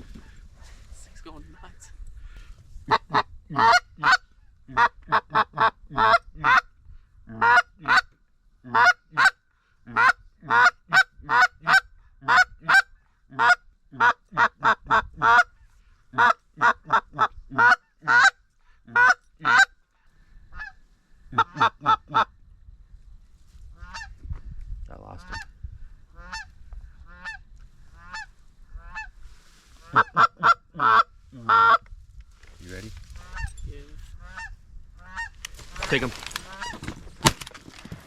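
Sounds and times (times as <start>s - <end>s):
duck call quacks: 2.9s - 6.6s, 7.3s - 8.1s, 8.7s - 15.5s, 16.2s - 19.7s, 20.6s - 22.3s, 29.8s - 31.8s.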